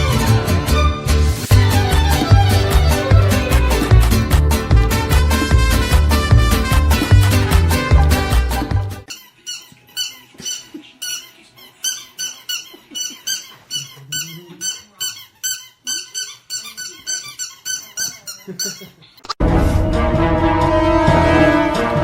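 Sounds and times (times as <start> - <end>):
rapid high-pitched squeaks: 9.1 - 19.0.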